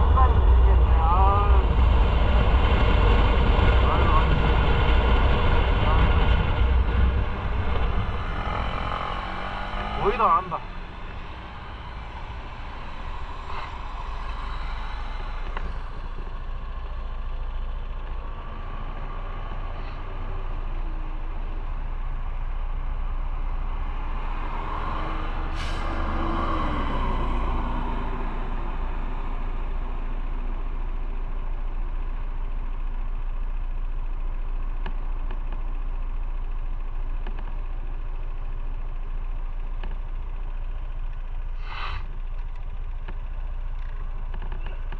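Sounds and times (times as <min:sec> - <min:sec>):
motorcycle engine rumble: 0:00.0 - 0:24.6, 0:28.2 - 0:44.9
sharp hiss: 0:41.6 - 0:42.0.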